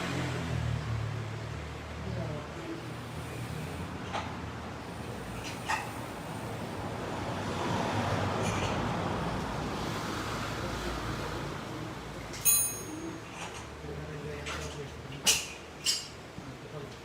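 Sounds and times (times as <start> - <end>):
vehicle road noise passing: 0.0 - 13.5
sharp metallic clink: 12.4 - 13.2.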